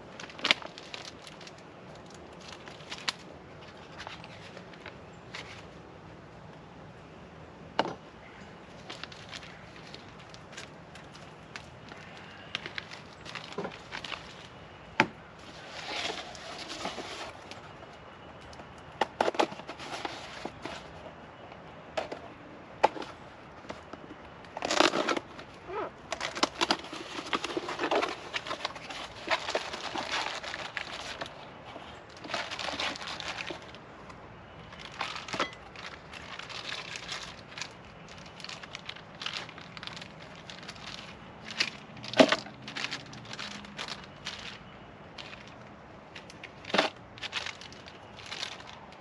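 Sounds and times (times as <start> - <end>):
packaging crinkling and rustling: 0.0 - 5.8, 8.8 - 49.0.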